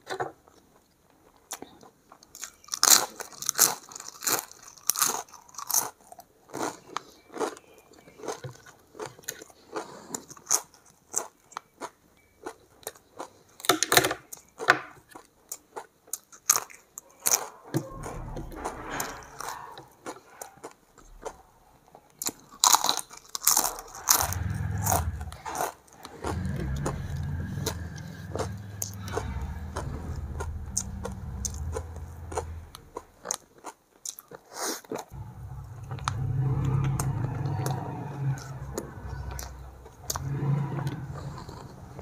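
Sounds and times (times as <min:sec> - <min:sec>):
crisp food crunching: 0:00.0 - 0:17.7, 0:22.1 - 0:37.9
low hum: 0:17.8 - 0:19.8, 0:23.6 - 0:33.3, 0:35.2 - 0:42.0.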